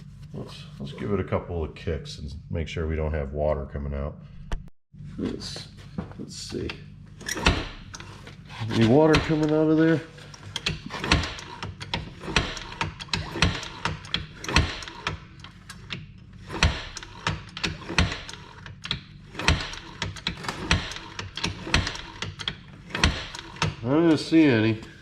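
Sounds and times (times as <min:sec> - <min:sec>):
engine kick starter clicks: 0:08.9 - 0:23.8.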